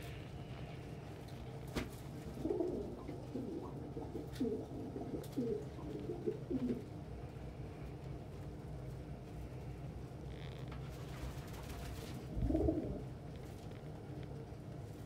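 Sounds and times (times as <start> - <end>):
pigeons cooing: 2.1 - 7.1, 11.7 - 13.3.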